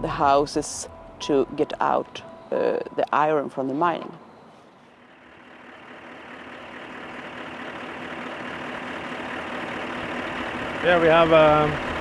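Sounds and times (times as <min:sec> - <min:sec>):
truck engine running: 0:04.2 - 0:12.0.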